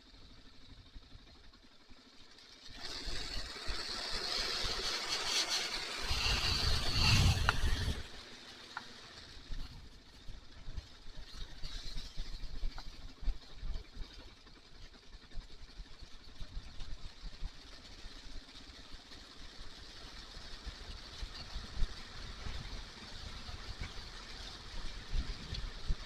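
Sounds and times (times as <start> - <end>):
motorcycle engine running: 0.0 - 26.0
wind rushing: 6.0 - 8.1.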